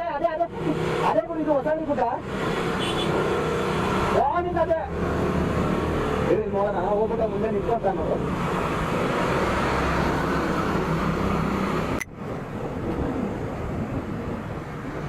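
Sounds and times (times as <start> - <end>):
wind noise on microphone: 8.2 - 15.0.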